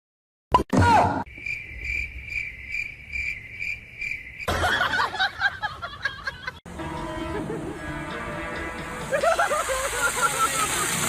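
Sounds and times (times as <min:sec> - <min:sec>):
cricket chirping: 0:01.3 - 0:06.4.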